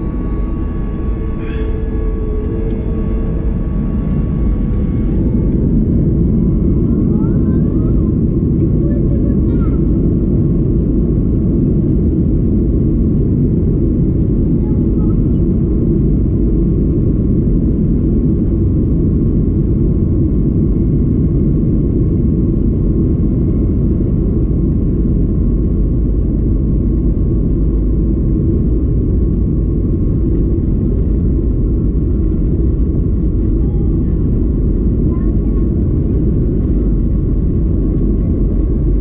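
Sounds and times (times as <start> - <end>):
air rushing over fuselage: 0.0 - 7.3
faint steady whine: 0.0 - 16.9, 20.8 - 39.0
airplane engine drone: 0.0 - 39.0.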